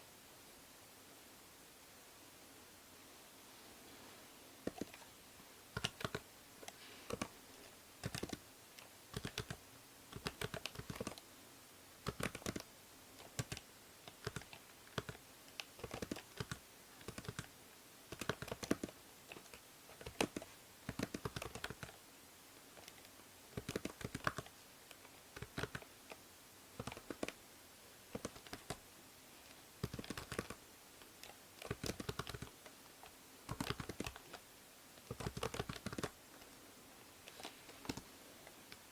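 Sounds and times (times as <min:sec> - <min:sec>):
low microphone hiss: 0:00.0 - 0:38.9
keyboard typing clicks: 0:04.6 - 0:05.1, 0:05.7 - 0:07.3, 0:08.0 - 0:09.6, 0:10.2 - 0:11.2, 0:12.0 - 0:17.5, 0:18.1 - 0:22.0, 0:22.8 - 0:25.9, 0:26.8 - 0:27.4, 0:28.1 - 0:28.8, 0:29.8 - 0:32.5, 0:33.5 - 0:34.4, 0:35.0 - 0:36.5, 0:37.3 - 0:38.1.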